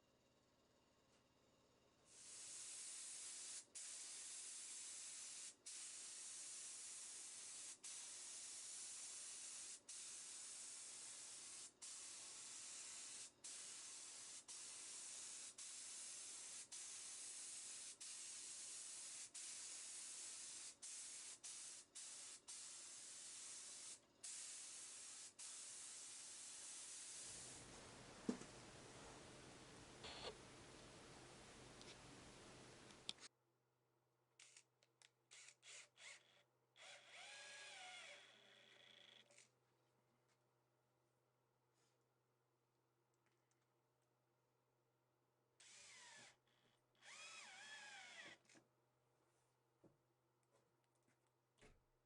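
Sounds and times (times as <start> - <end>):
spray nozzle hissing: 2.1 - 27.6.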